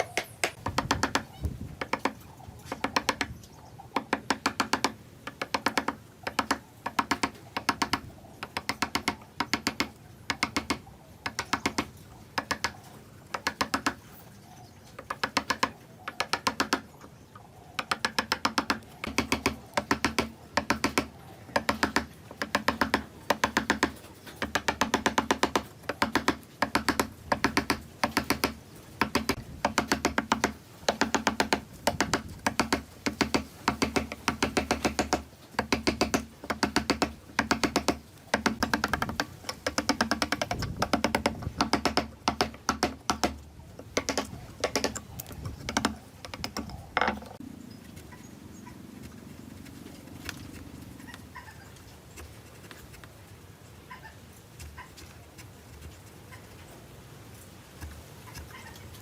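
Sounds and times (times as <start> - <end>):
rapid tapping on wood: 0.0 - 14.0, 15.0 - 16.9, 17.8 - 47.4.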